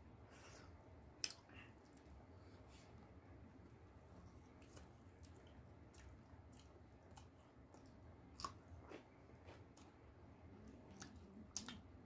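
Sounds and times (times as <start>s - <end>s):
faint chewing: 0.3s - 12.0s
wet mouth clicks: 10.9s - 11.9s.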